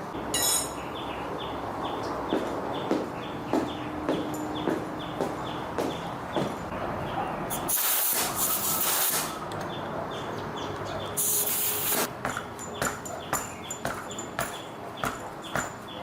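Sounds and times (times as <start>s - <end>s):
pressurised spray hissing: 7.5s - 9.3s, 11.2s - 12.1s.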